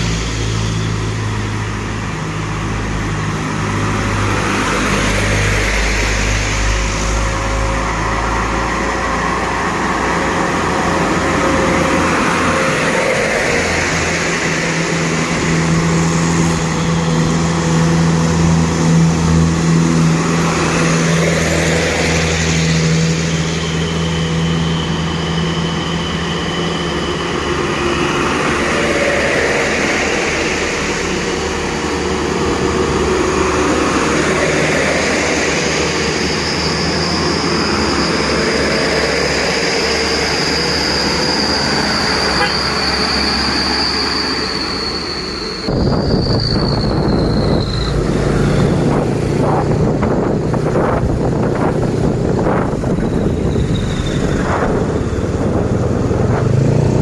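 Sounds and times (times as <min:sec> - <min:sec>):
road noise: 0:00.0 - 0:57.0
truck engines running: 0:00.0 - 0:57.0.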